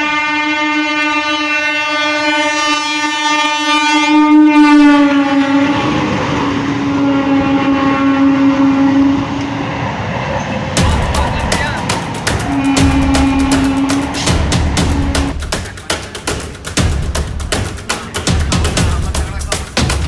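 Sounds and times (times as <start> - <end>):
train horn blast: 0.0 - 10.0, 10.8 - 15.4
train wheels clattering on rails: 10.3 - 20.0.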